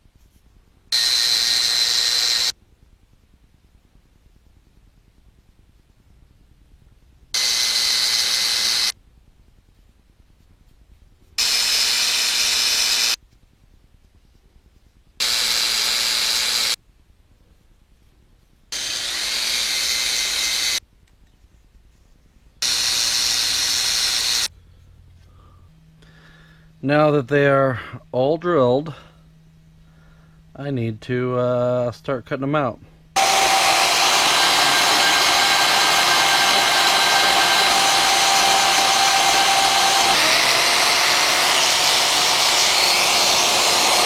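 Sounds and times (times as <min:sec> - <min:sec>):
electric drill drilling metal: 0:00.9 - 0:02.6, 0:07.4 - 0:09.0, 0:11.4 - 0:13.2, 0:15.2 - 0:16.8, 0:18.7 - 0:20.8, 0:22.6 - 0:24.5, 0:33.2 - 0:44.0.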